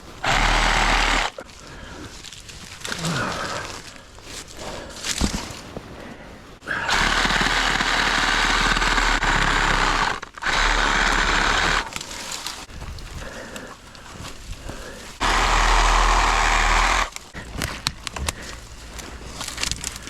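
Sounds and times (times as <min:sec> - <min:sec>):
reciprocating saw cutting wood: 0:00.2 - 0:01.4, 0:06.7 - 0:12.6, 0:15.2 - 0:18.6
handling noise: 0:11.7 - 0:20.0.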